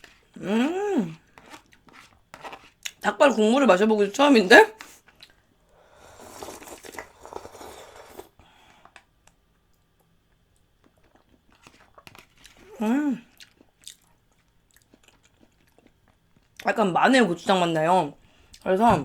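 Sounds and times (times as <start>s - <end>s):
person humming: 0.4s - 1.2s, 12.7s - 13.2s
slurping broth: 5.8s - 8.4s
faint chewing clicks: 13.3s - 16.7s.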